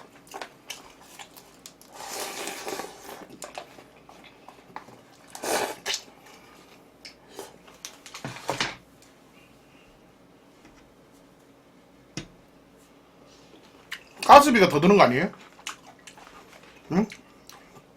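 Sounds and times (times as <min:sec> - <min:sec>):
wet chewing and slurping: 0:00.0 - 0:08.1, 0:15.4 - 0:17.9.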